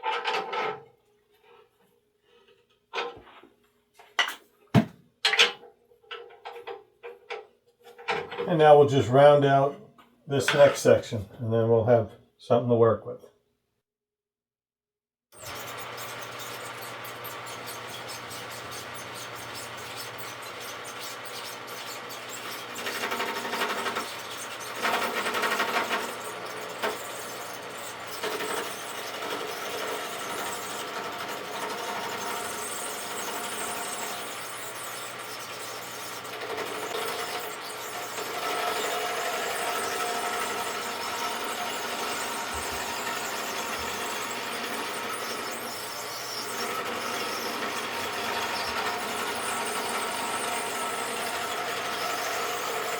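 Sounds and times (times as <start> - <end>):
lathe tool cutting wood: 15.4 - 52.9
motor hum: 15.4 - 52.9.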